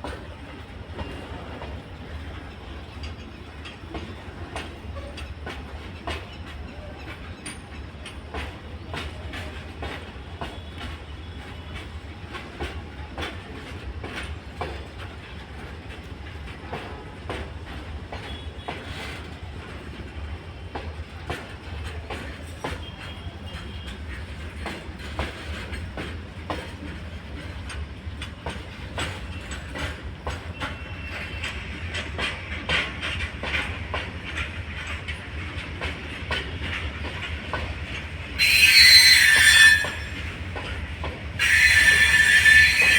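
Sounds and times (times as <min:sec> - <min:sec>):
train rumble: 0:00.0 - 0:42.9
train wheels clicking over rail joints: 0:00.0 - 0:42.9
wheel squeal: 0:38.4 - 0:40.4, 0:41.4 - 0:42.9.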